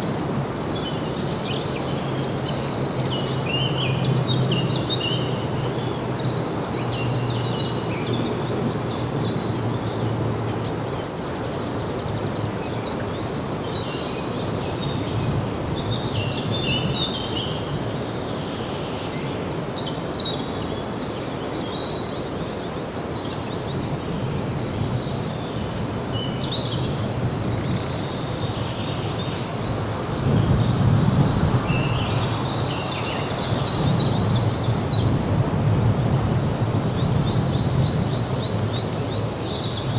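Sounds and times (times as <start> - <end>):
small birds chirping: 0.5 - 10.8, 25.1 - 39.9.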